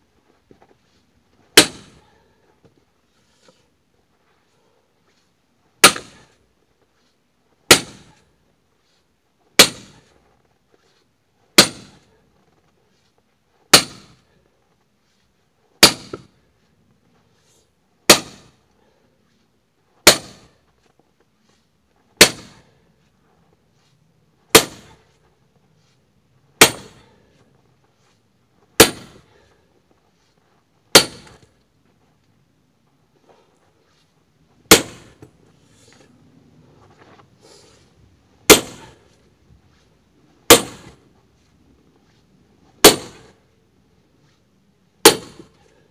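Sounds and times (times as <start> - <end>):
axe splitting firewood: 1.5 - 2.1, 5.8 - 6.4, 7.7 - 8.2, 9.6 - 10.2, 11.6 - 12.1, 13.7 - 14.3, 15.8 - 16.3, 18.1 - 18.6, 20.0 - 20.6, 22.2 - 22.8, 24.5 - 25.1, 26.6 - 27.4, 28.8 - 29.4, 30.9 - 31.6, 34.7 - 35.3, 38.4 - 39.1, 40.5 - 41.0, 42.8 - 43.4, 45.0 - 45.6.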